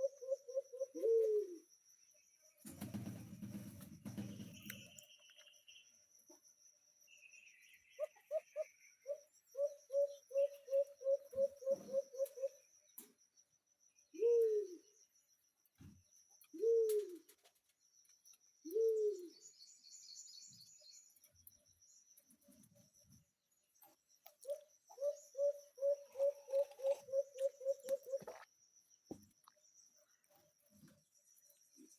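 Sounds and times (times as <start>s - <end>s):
bird giving low coos: 0.0s - 1.7s, 8.0s - 12.6s, 14.1s - 15.0s, 16.5s - 17.4s, 18.6s - 19.5s, 24.5s - 28.5s.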